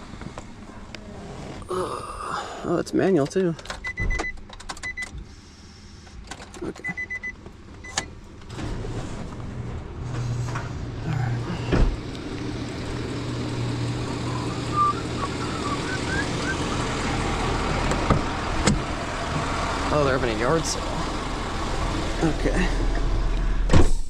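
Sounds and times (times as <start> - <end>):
car engine idling: 10.0 - 23.7
thump: 23.7 - 24.0.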